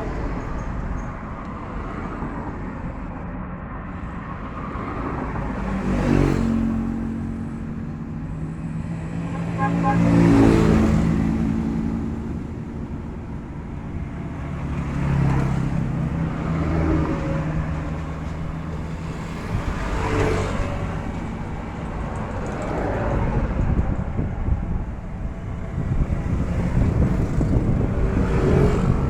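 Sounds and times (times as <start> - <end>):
vehicle engine humming: 0.0 - 29.0.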